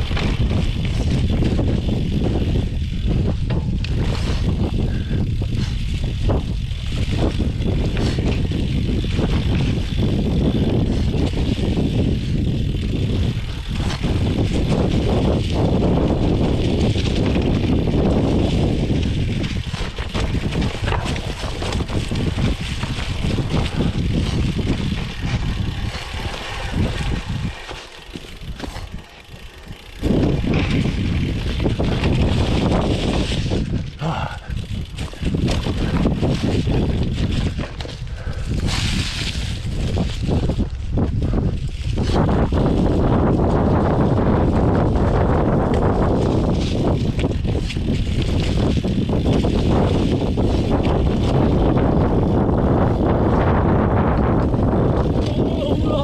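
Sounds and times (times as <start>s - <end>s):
wind buffeting microphone: 0.0s - 56.0s
tyres rattling over gravel: 3.9s - 40.9s.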